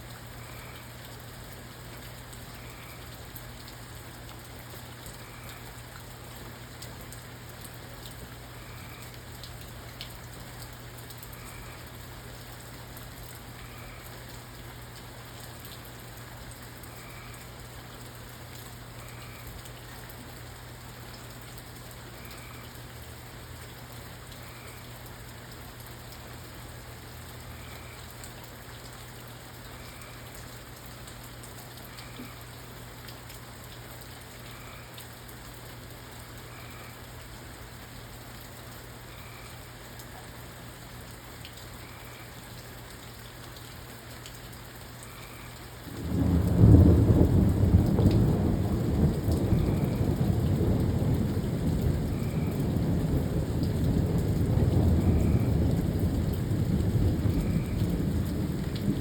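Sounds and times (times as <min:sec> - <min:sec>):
steady rain: 0:00.0 - 0:59.0
thunder rumbling: 0:46.0 - 0:59.0.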